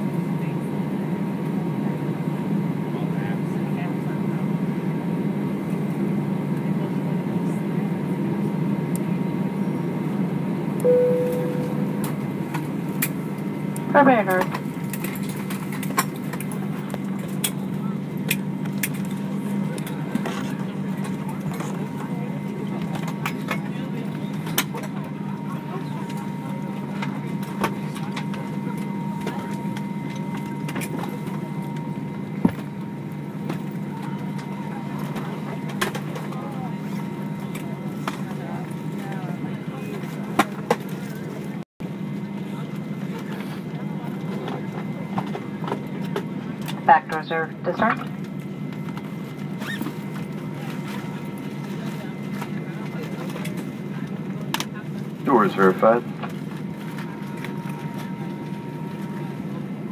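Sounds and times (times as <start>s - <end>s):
airplane cabin hum: 0.0s - 59.9s
faint high steady tone: 10.8s - 12.2s
cabin chime: 10.9s - 12.0s.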